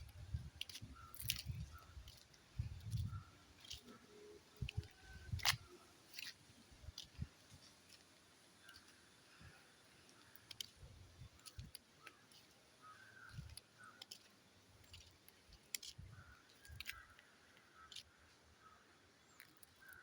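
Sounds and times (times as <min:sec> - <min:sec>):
faint bird calls: 0:08.6 - 0:14.3, 0:16.0 - 0:20.0.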